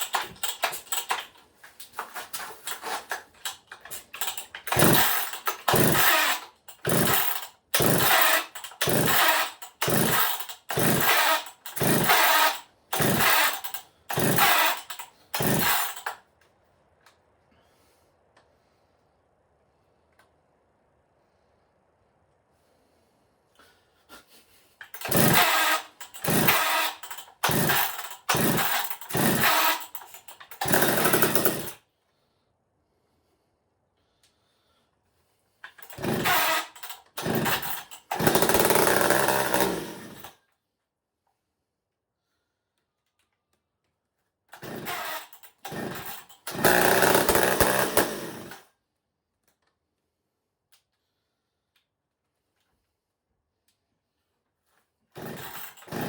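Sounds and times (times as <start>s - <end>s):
chainsaw pull-start cranking: 0.0s - 16.2s, 24.8s - 31.8s, 35.6s - 40.4s, 44.5s - 48.7s, 55.2s - 56.0s.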